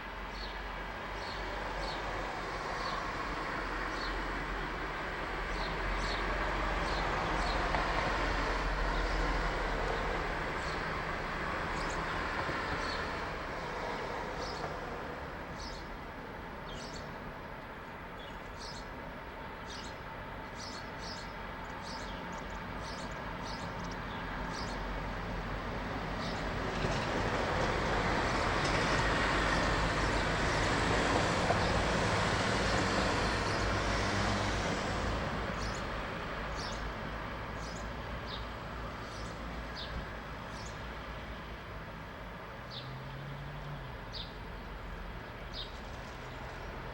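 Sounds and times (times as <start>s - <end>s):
passing vehicle rushing: 24.4s - 40.5s.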